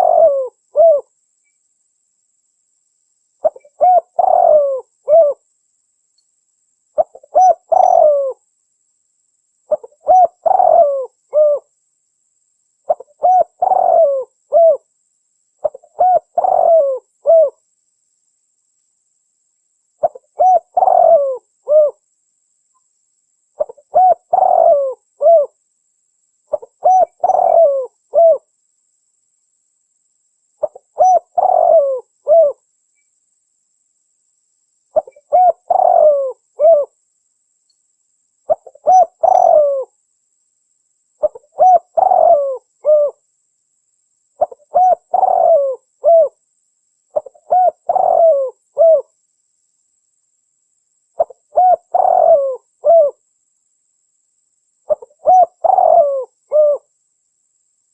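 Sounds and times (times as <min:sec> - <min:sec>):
dove cooing: 0:00.0 - 0:01.1, 0:03.4 - 0:05.4, 0:07.0 - 0:08.4, 0:09.7 - 0:11.7, 0:12.9 - 0:14.9, 0:15.6 - 0:17.6, 0:20.0 - 0:22.0, 0:23.6 - 0:25.6, 0:26.5 - 0:28.5, 0:30.6 - 0:32.6, 0:35.0 - 0:37.0, 0:38.5 - 0:39.9, 0:41.2 - 0:43.2, 0:44.4 - 0:46.4, 0:47.1 - 0:49.2, 0:51.2 - 0:53.2, 0:54.9 - 0:56.9.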